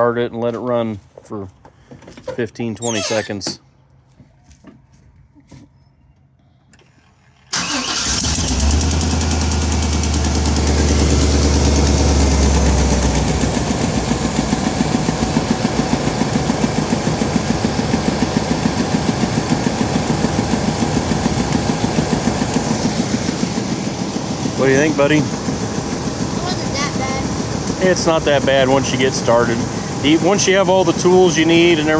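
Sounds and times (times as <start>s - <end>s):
truck engine starting and idling: 7.1s - 31.9s.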